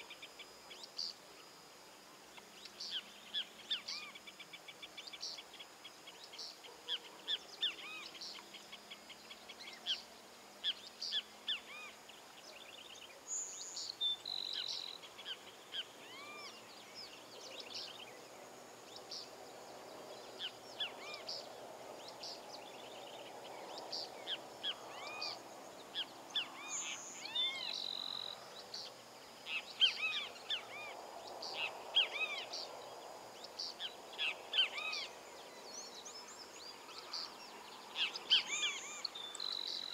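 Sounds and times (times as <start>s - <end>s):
wild birds chirping and singing: 0.0s - 39.9s.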